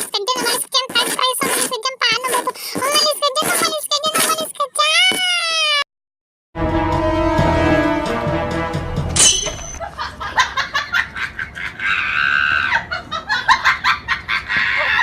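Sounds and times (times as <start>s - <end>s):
background music: 6.6s - 9.8s.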